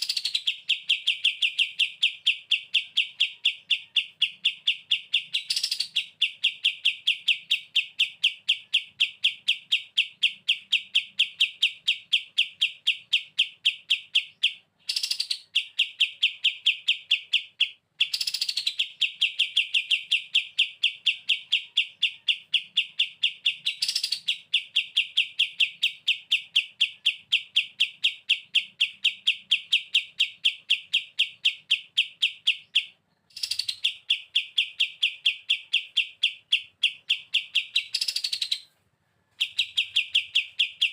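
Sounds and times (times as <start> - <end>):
songbird rattling trill: 0.0 - 38.7, 39.4 - 40.9.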